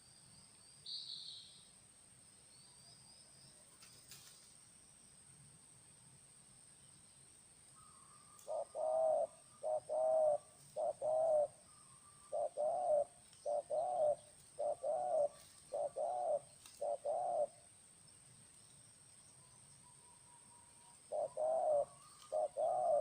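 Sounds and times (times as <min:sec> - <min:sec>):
dove cooing: 0:08.3 - 0:17.6, 0:21.0 - 0:23.0.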